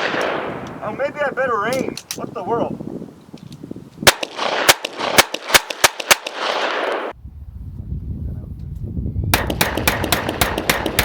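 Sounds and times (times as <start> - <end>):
rapid gunfire with echo: 4.1 - 7.1, 9.4 - 11.0.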